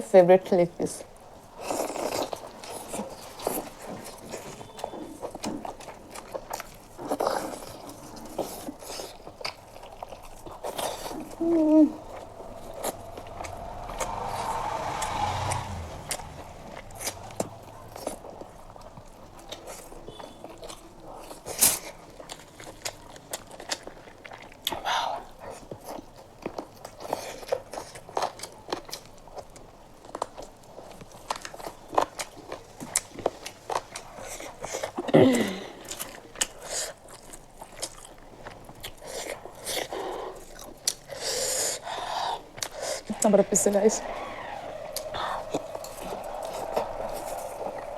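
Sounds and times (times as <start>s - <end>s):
food crunching: 1.5s - 13.2s.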